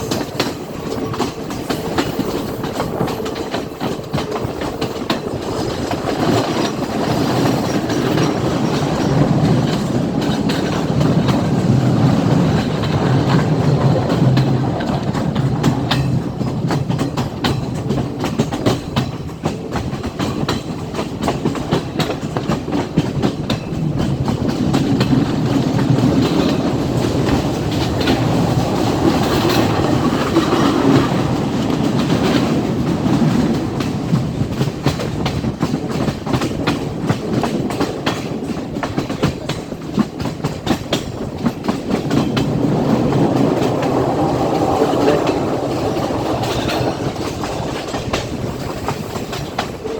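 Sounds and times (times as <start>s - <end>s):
train rumble: 0.0s - 49.9s
train wheels clicking over rail joints: 0.0s - 49.9s.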